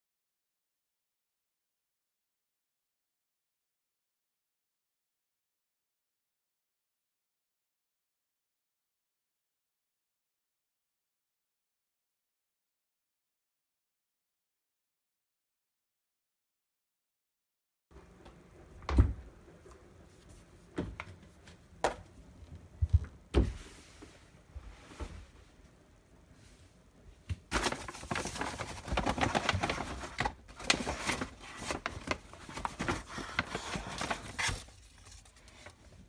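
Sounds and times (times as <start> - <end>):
rustling and clattering rummaging: 27.4 - 36.0.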